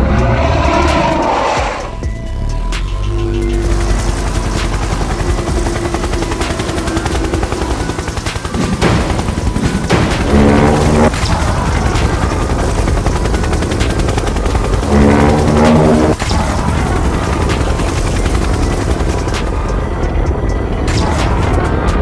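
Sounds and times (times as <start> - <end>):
cartoon helicopter rotor chopping: 3.4 - 20.4.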